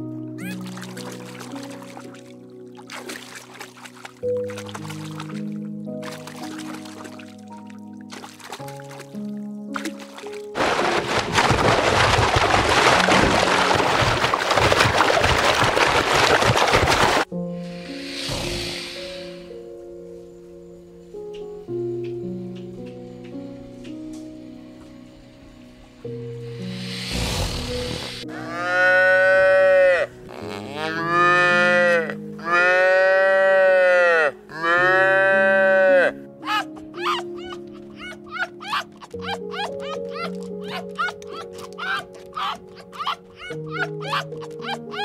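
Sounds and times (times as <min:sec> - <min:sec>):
soft background music: 0:00.0 - 0:14.4, 0:17.2 - 0:45.0
churning rush of water: 0:00.6 - 0:07.5, 0:09.7 - 0:17.3
brief rush of noise: 0:17.8 - 0:19.5
calf mooing: 0:28.3 - 0:36.6.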